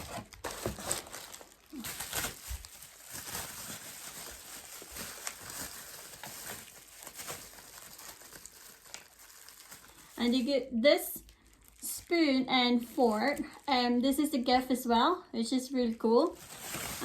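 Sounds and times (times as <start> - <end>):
packaging rustling: 0.0 - 10.6, 16.2 - 17.0.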